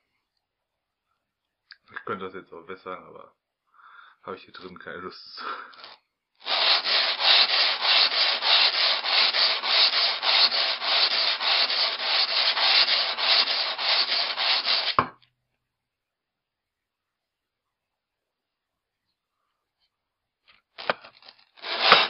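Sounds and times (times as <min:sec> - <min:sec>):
axe rasping on sandpaper: 0:05.8 - 0:15.0, 0:21.6 - 0:22.0.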